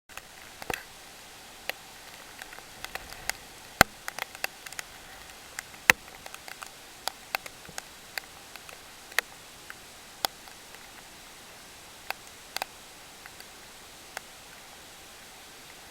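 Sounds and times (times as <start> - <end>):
faint steady hiss: 0.1 - 15.9
raindrops tapping on hard surface: 1.6 - 11.1.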